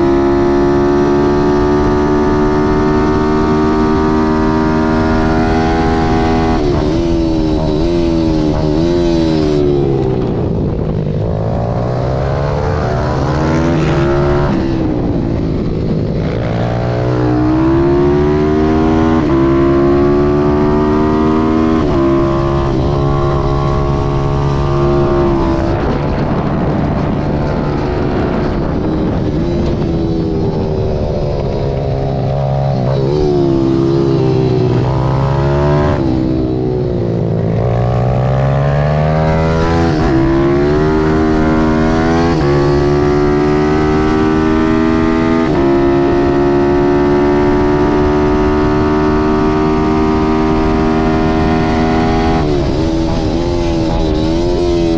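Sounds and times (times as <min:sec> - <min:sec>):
motorbike engine revving: 0:00.0 - 0:54.9.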